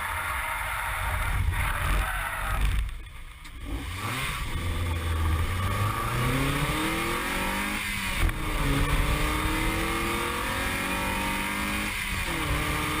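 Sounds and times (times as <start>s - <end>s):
wind and road noise: 0.0s - 13.0s
car engine accelerating hard: 3.5s - 13.0s.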